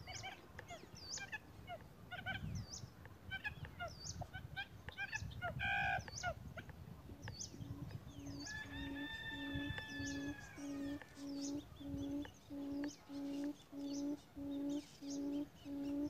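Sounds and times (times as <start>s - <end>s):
low repeated hoots: 7.0s - 16.0s
bird chirps and whistles: 7.2s - 16.0s.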